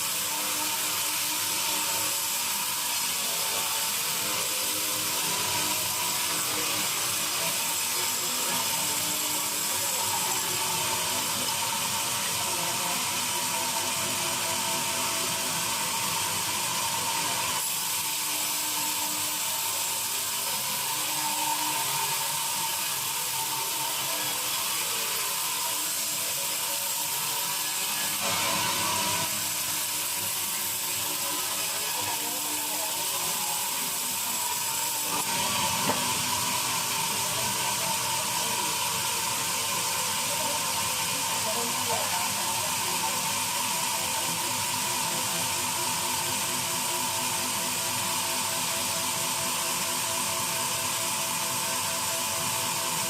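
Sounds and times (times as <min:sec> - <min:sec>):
band saw blade cutting log: 0:27.0 - 0:32.6.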